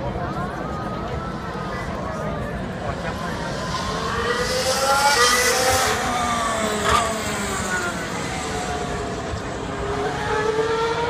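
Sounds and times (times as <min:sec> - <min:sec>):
racing car engine at high revs: 0:02.7 - 0:11.0.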